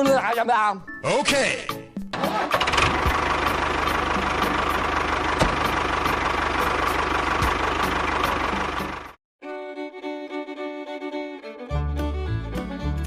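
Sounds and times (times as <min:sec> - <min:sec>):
music: 0:00.0 - 0:04.9, 0:05.5 - 0:13.0
small engine chugging: 0:02.5 - 0:09.2.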